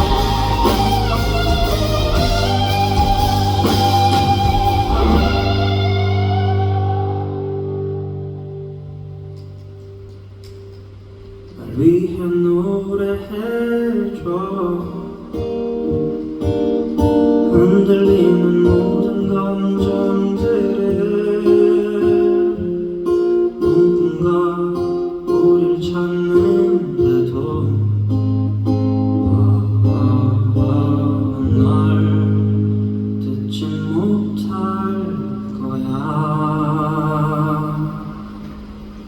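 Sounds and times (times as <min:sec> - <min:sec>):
low held note: 0:00.0 - 0:10.1
strummed guitar chords: 0:00.0 - 0:39.0.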